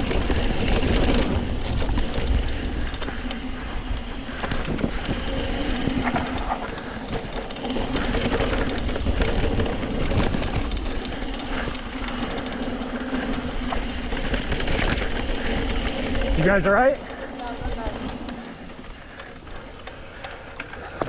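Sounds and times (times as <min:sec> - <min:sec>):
bike rattles and clicks: 0:00.0 - 0:21.0.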